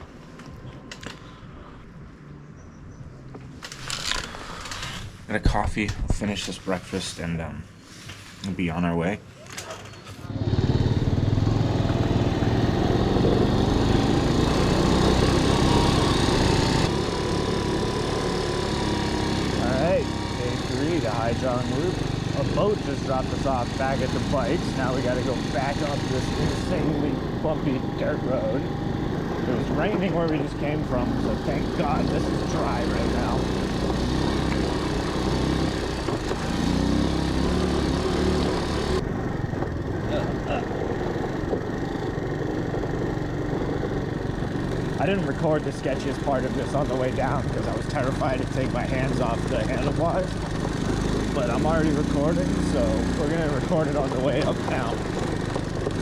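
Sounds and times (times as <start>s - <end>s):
small engine running: 10.2s - 56.0s
rough rattling: 52.6s - 56.0s.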